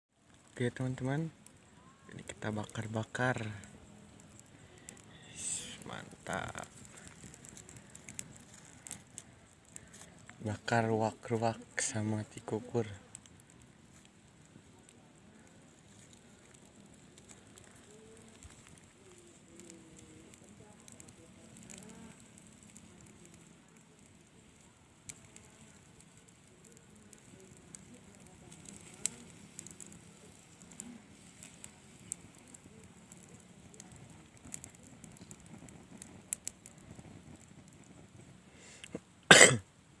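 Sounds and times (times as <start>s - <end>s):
fire crackling and popping: 0.1s - 40.0s
faint hiss: 0.2s - 40.0s
loud cough: 39.3s - 39.6s.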